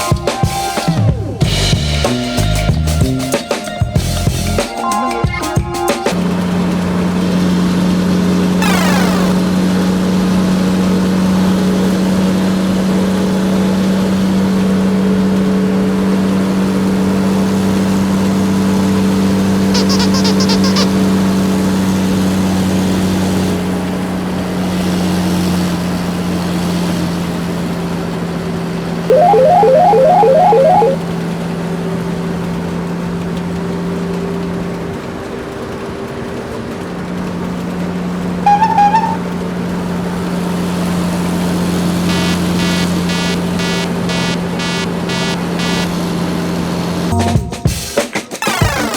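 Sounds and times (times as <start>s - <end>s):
rapid electronic chirps: 8.6s - 9.6s, 19.8s - 21.0s, 29.1s - 31.0s, 42.1s - 46.0s, 48.4s - 48.9s.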